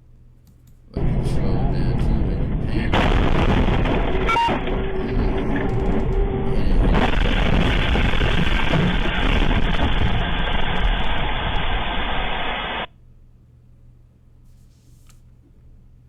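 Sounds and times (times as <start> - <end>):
truck engine rumble: 1.0 - 12.8.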